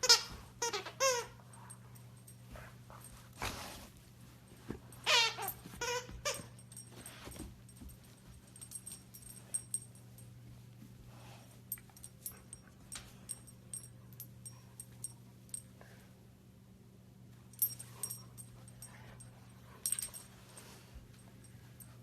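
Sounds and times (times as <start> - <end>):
puppy claws clicking and jingles: 4.5 - 10.4, 11.7 - 15.7, 17.5 - 22.0.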